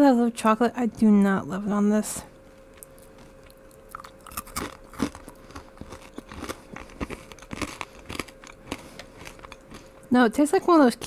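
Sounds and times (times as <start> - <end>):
person chewing crunchy candy: 2.7 - 10.2.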